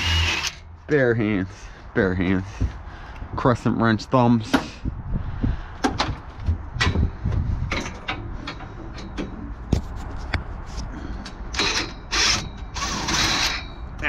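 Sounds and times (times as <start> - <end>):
steady low rumble: 0.6 - 11.5.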